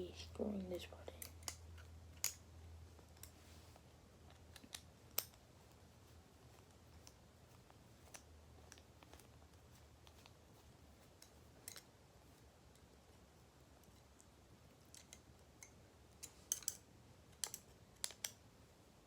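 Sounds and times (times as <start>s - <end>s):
small metal parts clicking: 11.2s - 11.9s, 14.8s - 18.4s.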